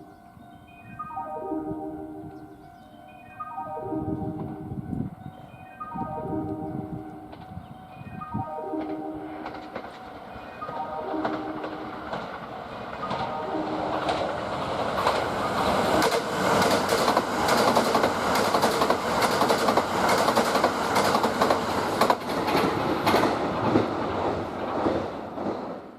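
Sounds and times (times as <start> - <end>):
train rushing past: 5.9 - 25.9.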